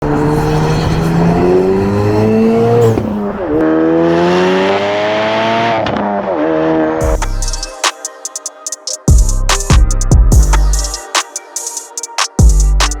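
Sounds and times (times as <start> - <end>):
car engine accelerating hard: 0.0 - 7.0.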